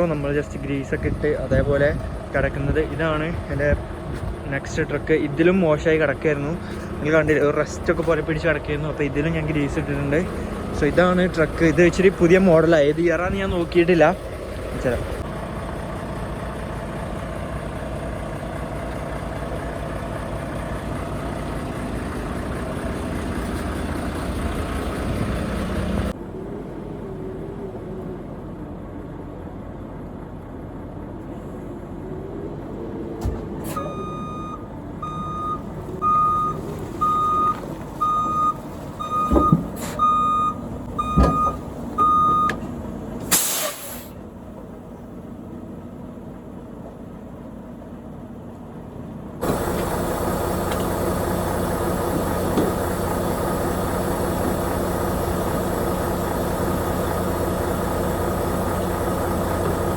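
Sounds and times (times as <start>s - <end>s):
diesel engine drone: 0.0s - 59.9s
heavy clunks: 1.5s - 4.8s, 33.2s - 43.5s
truck reversing alarm beeps: 33.6s - 42.7s
air brake hiss: 43.2s - 44.2s.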